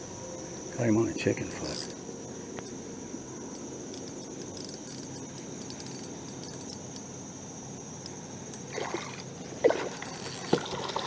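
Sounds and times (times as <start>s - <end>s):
low outdoor noise: 0.0s - 11.0s
fishing gear knocking and rattling: 3.5s - 7.1s.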